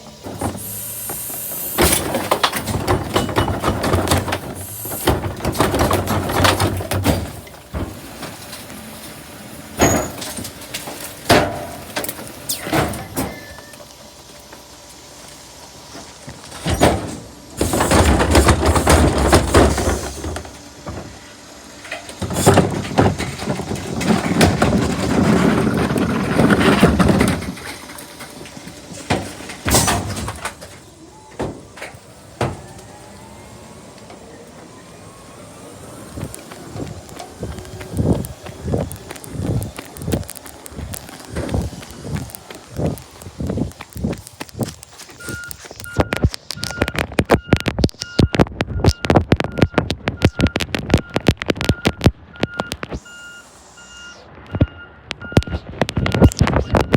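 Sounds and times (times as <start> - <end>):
garbage truck engine revving: 0.0 - 47.6.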